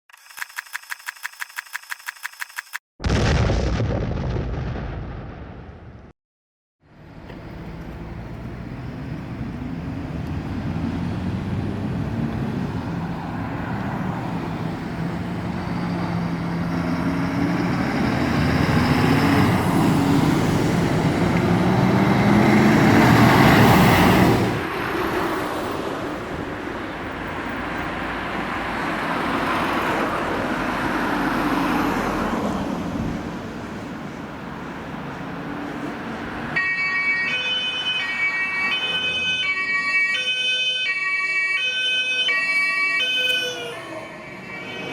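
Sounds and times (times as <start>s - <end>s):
fire engines passing: 6.9s - 44.9s
two-tone siren: 15.4s - 20.0s, 36.6s - 44.9s.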